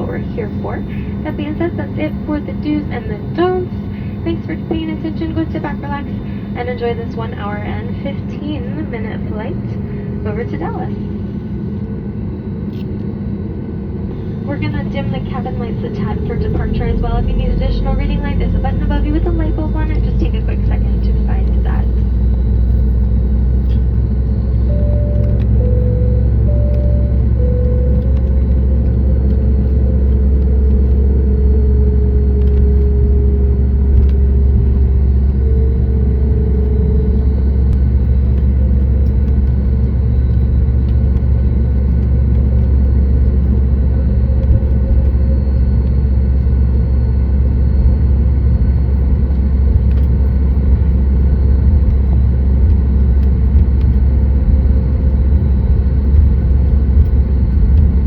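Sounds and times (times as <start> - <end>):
airplane cabin rumble: 0.0 - 58.0
faint hum drifting in pitch: 0.0 - 58.0.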